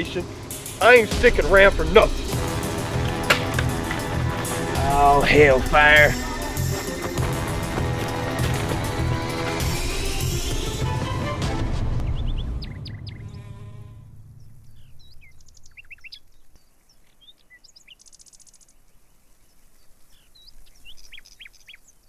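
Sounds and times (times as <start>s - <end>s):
small birds chirping: 0.0s - 10.8s, 12.0s - 13.7s, 14.4s - 22.0s
low rumble: 0.0s - 16.0s.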